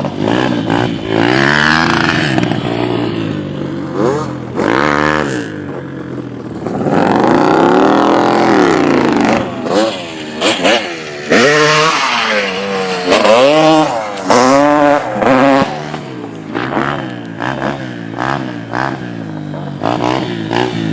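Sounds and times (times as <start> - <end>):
dirt bike engine revving: 0.0 - 20.9.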